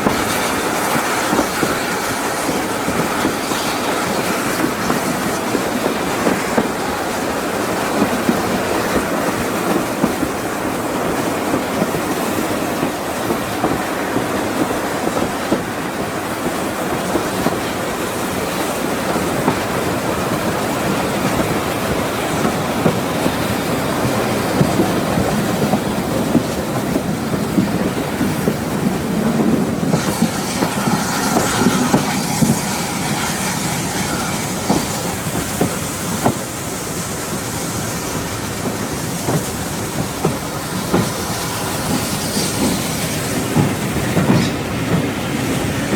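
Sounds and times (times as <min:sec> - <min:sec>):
train carriages rumbling: 0:00.0 - 0:45.9
wheels clattering over rail joints: 0:00.0 - 0:45.9
high hiss: 0:29.7 - 0:45.9.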